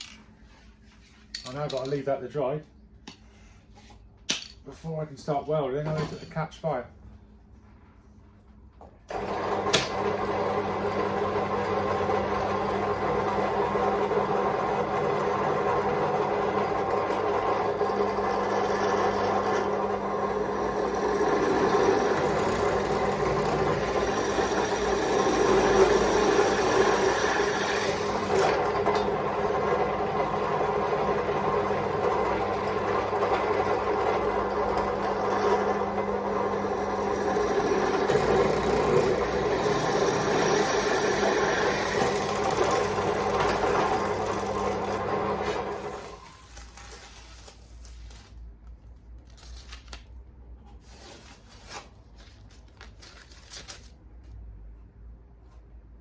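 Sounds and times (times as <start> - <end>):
electric power tool motor: 17.5 - 46.3.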